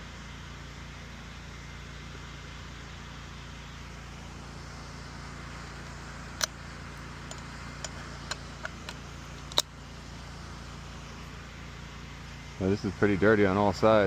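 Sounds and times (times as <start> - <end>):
pressure washer hum and hiss: 0.0 - 14.0
sharp click: 7.3 - 9.7.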